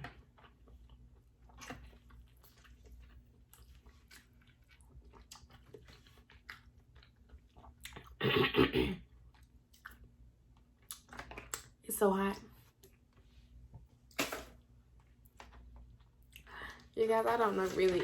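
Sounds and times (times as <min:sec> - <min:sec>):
person chewing: 0:00.2 - 0:08.2, 0:09.1 - 0:11.7
loud mouth sound: 0:08.2 - 0:09.0.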